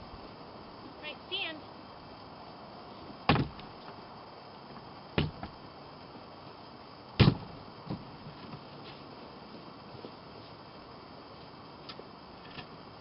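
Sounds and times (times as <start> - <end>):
sharp knocks: 3.3 - 3.6, 5.2 - 5.6, 7.2 - 8.0.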